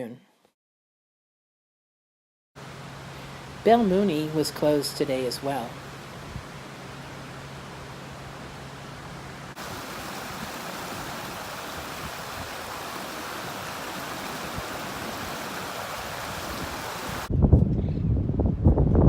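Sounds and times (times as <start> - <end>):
running water rushing: 9.5 - 17.3.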